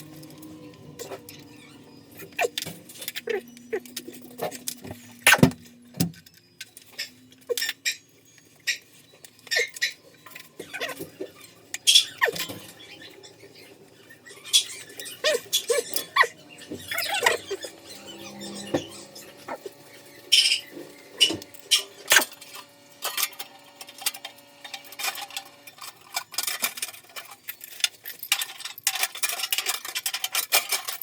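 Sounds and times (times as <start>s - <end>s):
short squeaks: 9.4s - 23.4s
metallic clinks and knocks: 14.2s - 31.0s.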